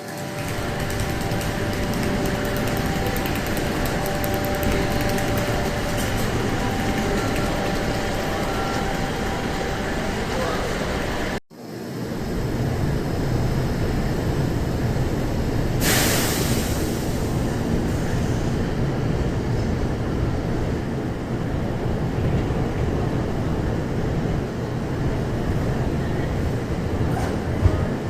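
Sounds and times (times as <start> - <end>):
electric train rumble: 0.0 - 28.0
sharp hiss of air: 15.8 - 17.3.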